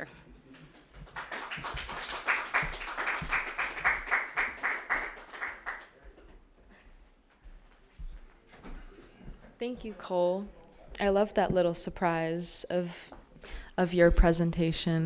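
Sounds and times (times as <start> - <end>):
small audience applauding: 0.5 - 6.2
rhythmic clapping: 0.6 - 6.2.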